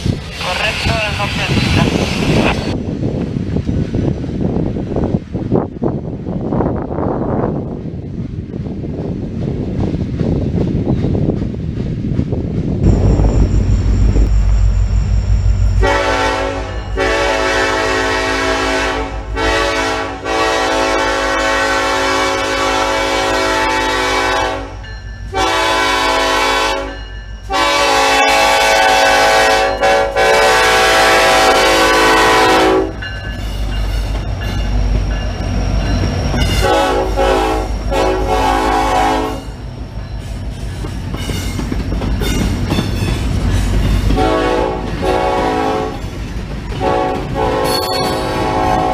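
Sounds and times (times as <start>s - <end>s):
rumble of passing train: 0.0s - 48.9s
locomotive air horn blasts: 15.8s - 33.0s, 36.5s - 39.5s, 44.1s - 46.0s, 46.8s - 48.9s.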